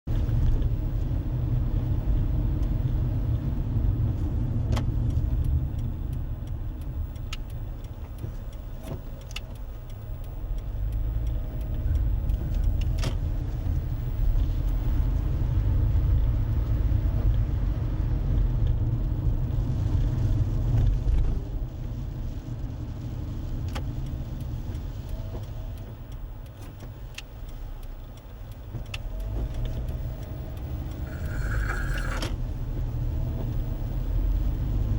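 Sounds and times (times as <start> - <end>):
car road noise rumble: 0.1 - 34.9
faint ticks: 4.2 - 17.5, 23.0 - 34.9.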